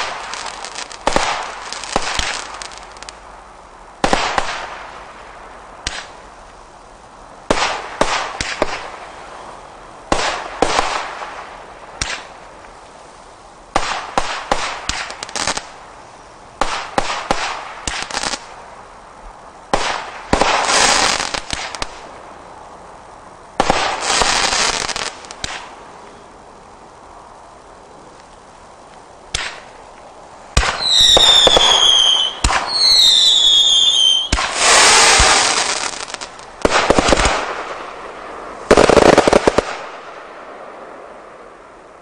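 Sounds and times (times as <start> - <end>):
firework cake firing sharp reports: 30.5 - 40.2.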